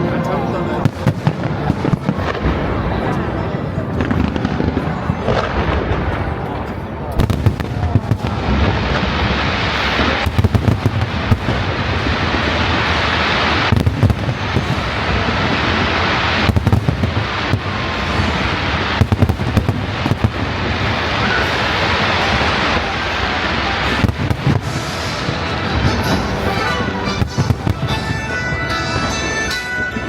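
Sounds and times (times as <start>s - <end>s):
rumble of firework bursts: 0.7s - 30.0s
sharp crackling bangs: 0.8s - 2.9s, 7.1s - 29.2s.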